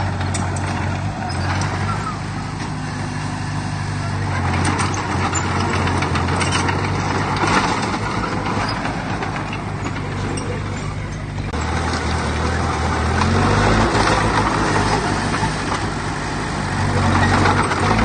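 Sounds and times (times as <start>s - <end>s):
clanks and rattles: 0.0s - 16.2s, 16.8s - 18.0s
heavy machinery diesel engine: 0.0s - 18.0s.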